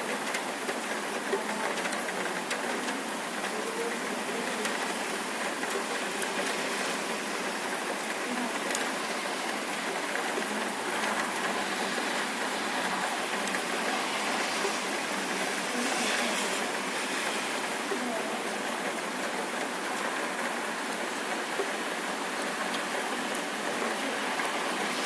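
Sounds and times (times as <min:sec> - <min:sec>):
rain falling steadily: 0:00.0 - 0:25.0
raindrop ticks: 0:00.1 - 0:06.6, 0:12.2 - 0:14.0, 0:22.4 - 0:24.6.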